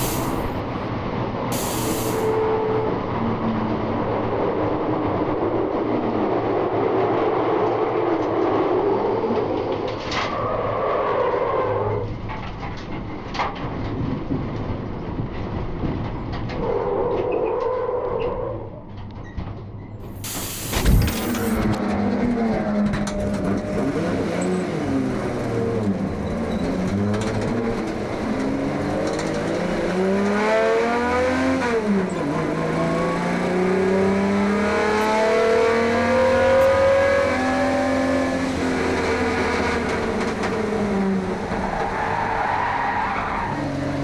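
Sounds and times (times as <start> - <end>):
road rumble and rattling: 0.0 - 16.8, 19.0 - 30.2.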